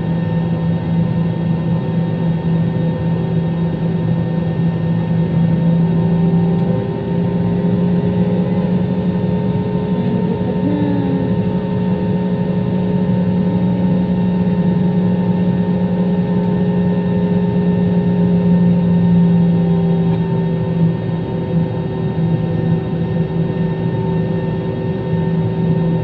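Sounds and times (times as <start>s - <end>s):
airplane engine and airflow drone: 0.0s - 26.0s
low steady hum: 3.7s - 21.3s.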